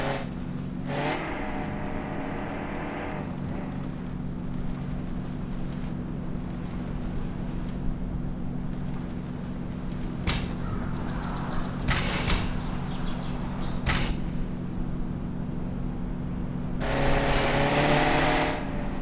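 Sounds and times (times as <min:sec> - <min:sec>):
road rumble: 0:00.0 - 0:19.0
car engine running: 0:08.2 - 0:19.0
short sharp knock: 0:10.3 - 0:13.0, 0:13.8 - 0:14.6.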